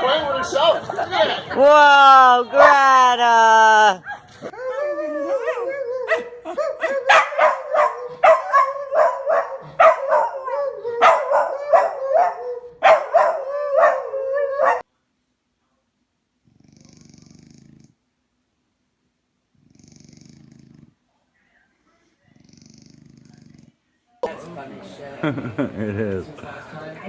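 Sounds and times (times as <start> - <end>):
dog barking and yipping: 2.6 - 2.9, 4.0 - 14.8.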